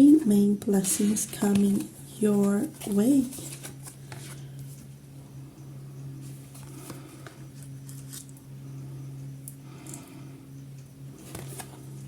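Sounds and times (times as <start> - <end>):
steady low hum: 0.0 - 12.0
cards rustling and tapping: 1.0 - 4.8, 11.2 - 11.8.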